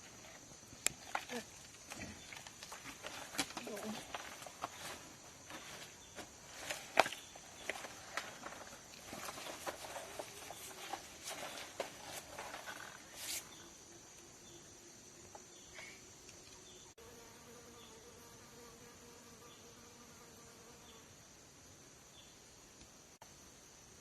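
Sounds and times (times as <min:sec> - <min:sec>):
rustles and clicks: 0:00.0 - 0:13.6
forest insects buzzing: 0:00.0 - 0:24.0.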